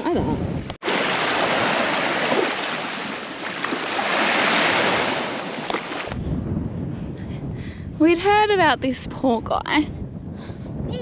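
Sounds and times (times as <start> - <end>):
ocean surf washing ashore: 0.5 - 6.2.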